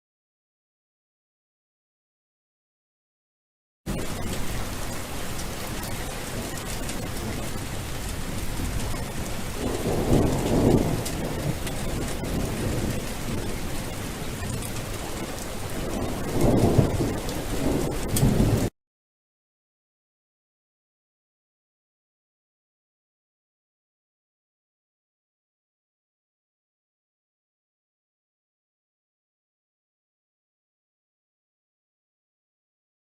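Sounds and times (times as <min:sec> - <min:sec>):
low thunder rolls: 0:03.9 - 0:18.7
steady rain: 0:03.9 - 0:18.7.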